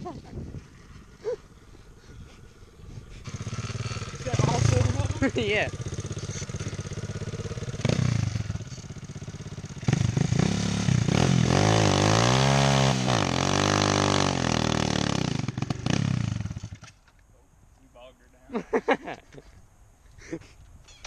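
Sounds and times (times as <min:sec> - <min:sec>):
pit bike engine revving: 0:00.4 - 0:16.9.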